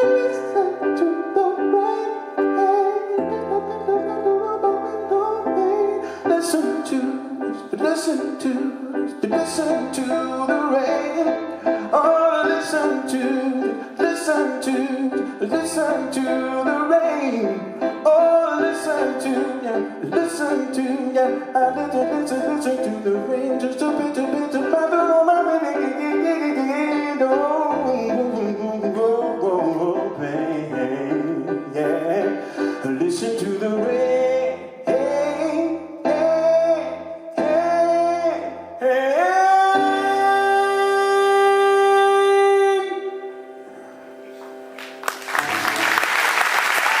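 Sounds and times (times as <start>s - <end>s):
person singing wordlessly: 0.0s - 43.3s
audience applause: 44.8s - 47.0s.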